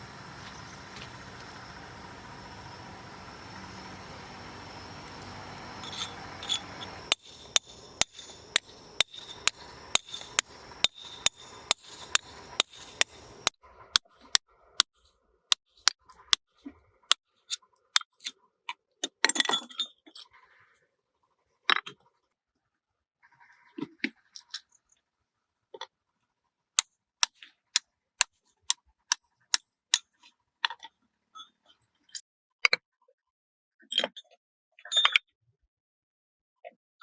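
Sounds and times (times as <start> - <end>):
steady hiss: 0.0 - 13.5
sharp strikes with ringing clink: 5.2 - 13.5.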